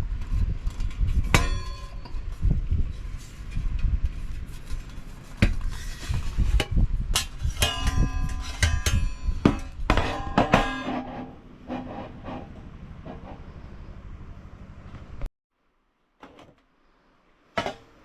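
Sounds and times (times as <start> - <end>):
metal camping gear clanking: 0.7 - 13.3.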